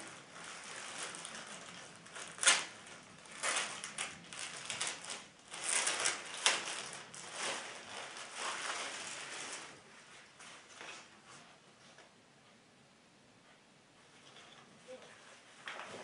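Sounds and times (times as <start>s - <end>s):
packaging rustling and crinkling: 0.0s - 11.1s.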